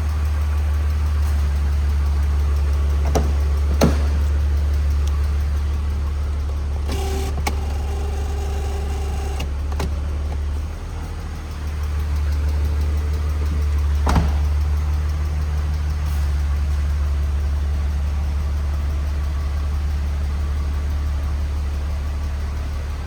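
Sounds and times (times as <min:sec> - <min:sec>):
car engine idling: 0:00.0 - 0:23.0
electric seat motor whining: 0:06.8 - 0:09.9.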